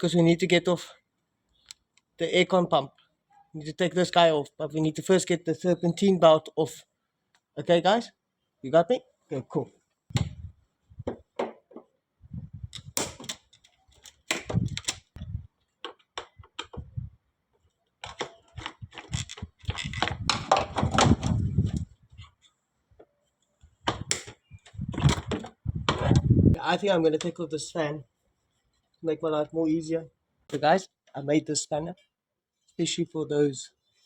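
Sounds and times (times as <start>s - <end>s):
rattling and scraping: 18.0s - 22.3s.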